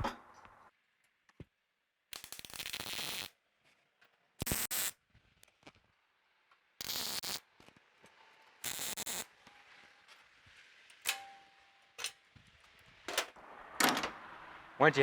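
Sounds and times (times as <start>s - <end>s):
welding arc crackling: 2.1s - 3.3s, 4.4s - 5.8s, 6.8s - 7.8s, 8.6s - 9.3s.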